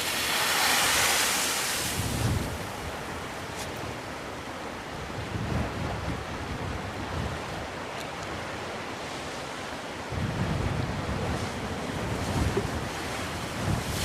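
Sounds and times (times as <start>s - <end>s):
sea surf washing ashore: 0.0s - 14.0s
wind buffeting microphone: 1.8s - 8.6s, 10.1s - 14.0s.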